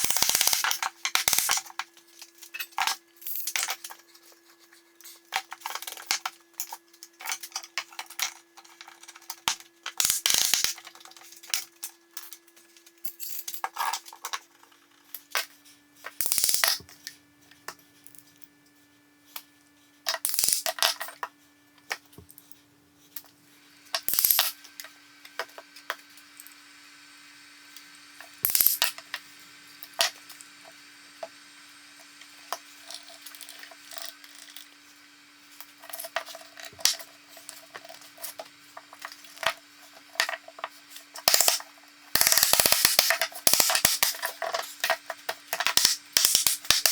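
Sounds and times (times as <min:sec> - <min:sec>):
faint steady hum: 0:00.0 - 0:46.9
small hard objects clicking: 0:41.2 - 0:41.6, 0:45.6 - 0:46.9.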